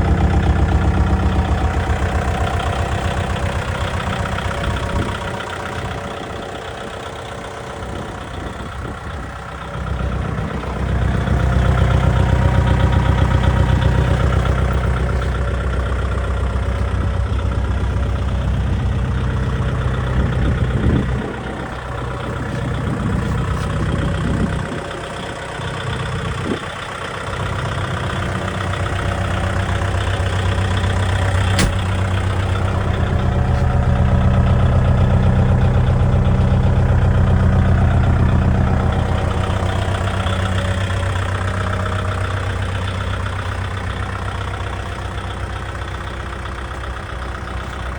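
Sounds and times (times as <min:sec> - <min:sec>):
tractor diesel engine running: 0:00.0 - 0:47.9
sharp click: 0:31.6 - 0:32.0.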